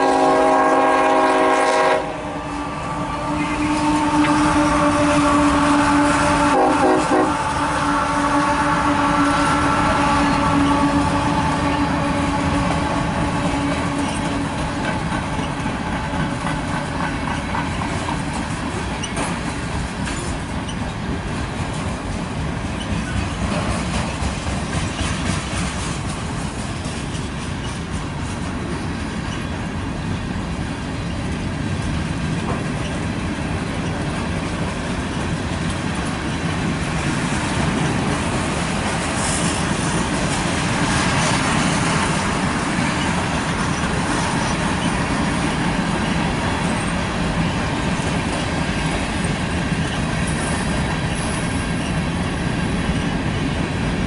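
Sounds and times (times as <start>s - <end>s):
freight train rumble: 0.0s - 54.0s
wheels clicking over rail joints: 9.5s - 53.9s.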